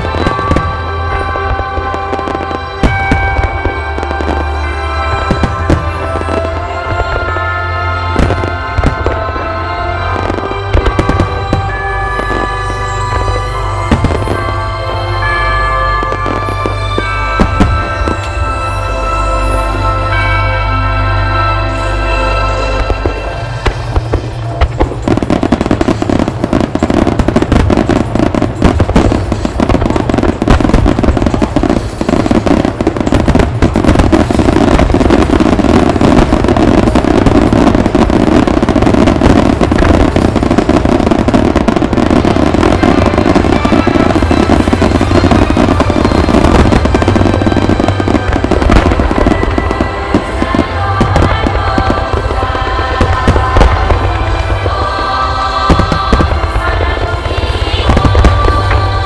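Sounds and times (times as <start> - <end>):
song over sound system: 0.0 - 59.0
deep rumbling booms and crackle: 23.6 - 50.4.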